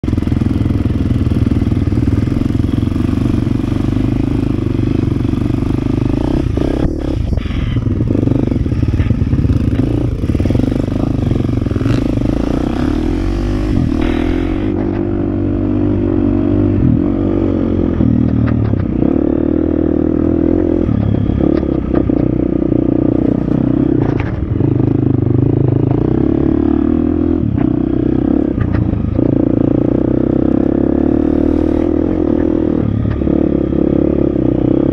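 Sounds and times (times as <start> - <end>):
dirt bike engine revving: 0.1 - 34.9
bike knocks and clatter: 28.6 - 29.3.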